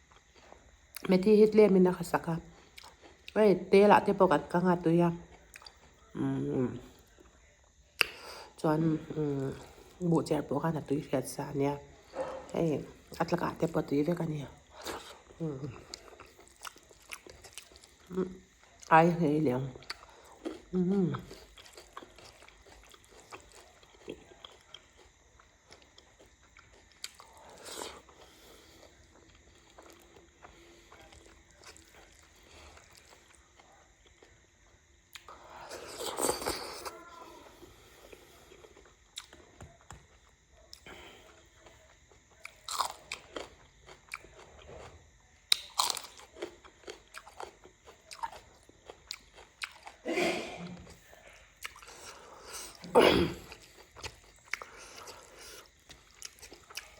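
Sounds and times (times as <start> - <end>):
person chewing: 2.5 - 3.4, 5.3 - 6.1, 7.0 - 8.3, 14.6 - 18.9, 19.8 - 56.9.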